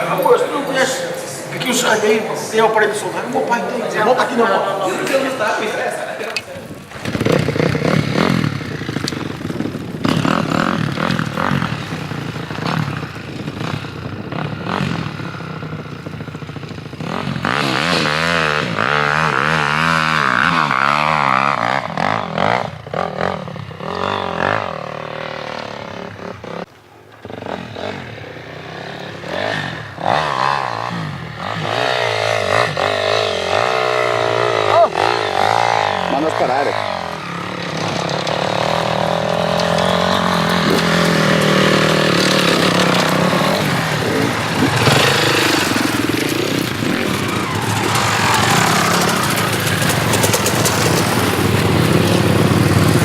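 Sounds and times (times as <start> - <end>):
motorcycle engine revving: 0.0 - 53.0
clattering and scraping: 36.8 - 52.0.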